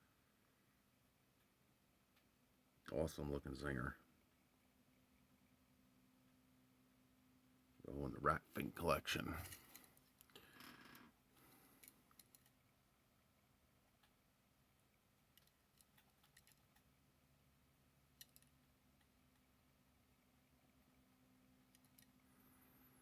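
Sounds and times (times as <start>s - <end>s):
toy car clicks: 11.8s - 12.6s, 15.3s - 16.9s, 18.2s - 19.5s, 21.7s - 22.2s.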